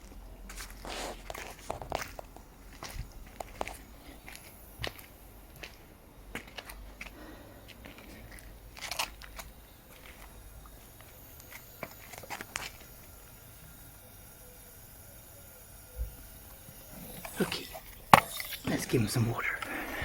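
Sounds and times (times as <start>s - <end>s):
steady low rumble: 0.0s - 11.4s
scattered crunches and clicks: 0.0s - 14.2s.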